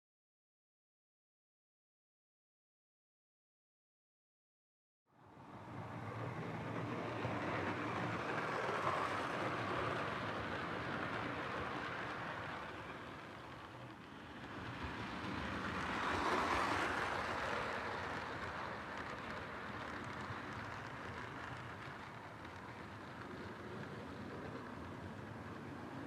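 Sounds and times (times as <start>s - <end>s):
toy train motor and wheels rumbling: 5.6s - 26.0s.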